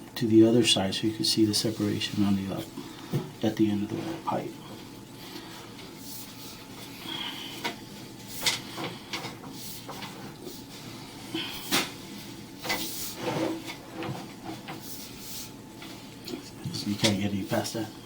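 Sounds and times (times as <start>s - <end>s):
cable clunking and scraping in pipe: 7.6s - 11.0s, 11.6s - 17.3s.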